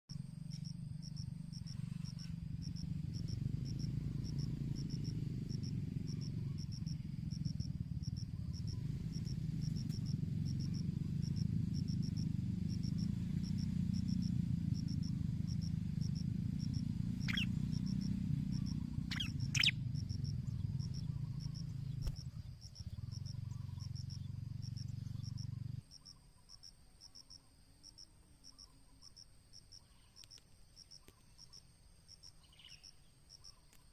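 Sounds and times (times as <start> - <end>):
low rumbling noise: 0.1 - 25.9
cricket chirping: 0.1 - 33.9
high chirps: 16.7 - 22.2.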